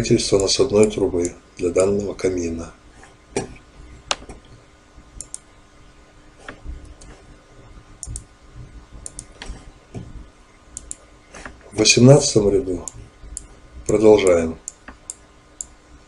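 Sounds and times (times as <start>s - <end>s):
faint steady hum: 0.0s - 16.0s
computer mouse clicks: 5.2s - 5.5s, 8.0s - 8.3s, 9.0s - 9.6s, 10.8s - 11.6s, 14.6s - 15.8s.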